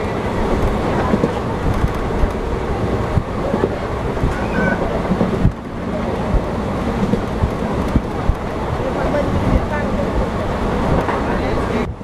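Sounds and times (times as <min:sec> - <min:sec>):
passenger train running: 0:00.0 - 0:12.0
train wheels knocking: 0:00.5 - 0:08.6.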